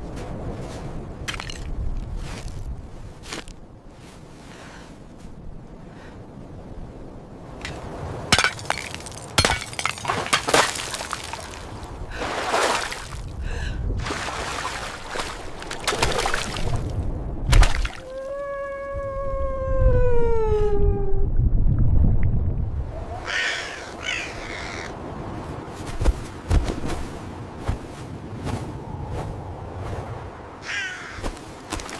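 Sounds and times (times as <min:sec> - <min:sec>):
long falling howl-like call: 0:18.0 - 0:21.2.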